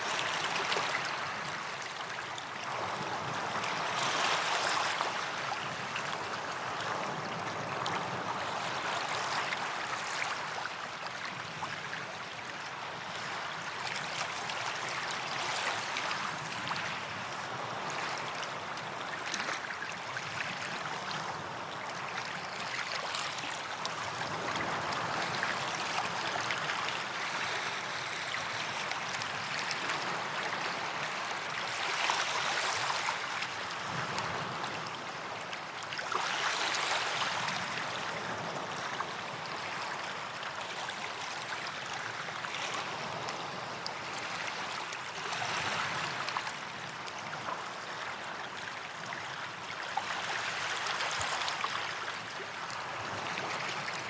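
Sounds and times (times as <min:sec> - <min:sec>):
small waves breaking on beach: 0:00.0 - 0:54.0.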